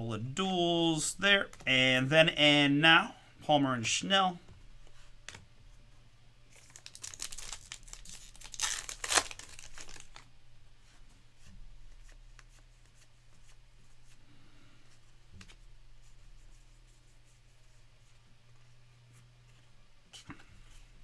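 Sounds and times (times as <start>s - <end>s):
cards being handled: 6.5s - 10.3s
foil wrapper tearing and crinkling: 6.6s - 10.3s.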